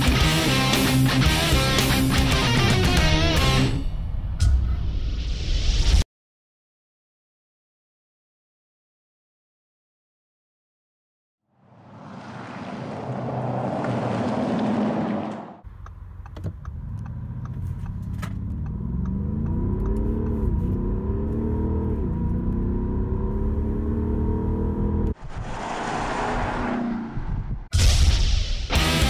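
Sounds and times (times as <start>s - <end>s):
diesel engine accelerating: 11.6s - 27.7s
whooshing noise: 25.1s - 28.6s.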